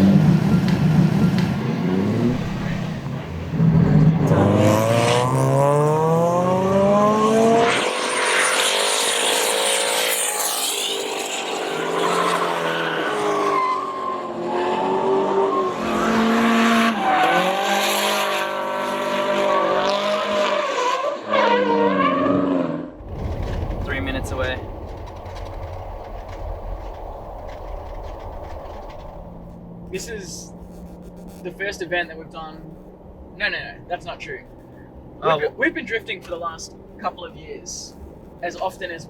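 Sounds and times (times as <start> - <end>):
car engine revving hard: 0.0 - 13.2, 14.3 - 23.0.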